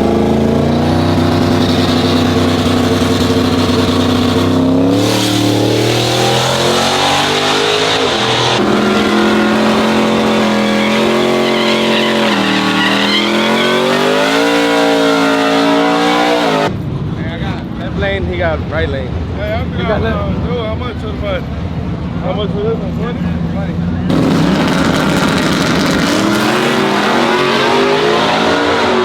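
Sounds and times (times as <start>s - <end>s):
truck engines revving: 0.0s - 29.0s.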